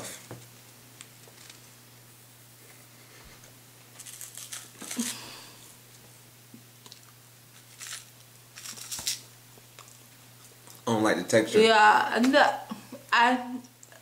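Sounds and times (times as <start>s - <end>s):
plastic wrapper crinkling and tearing: 4.0s - 5.2s, 7.6s - 9.2s.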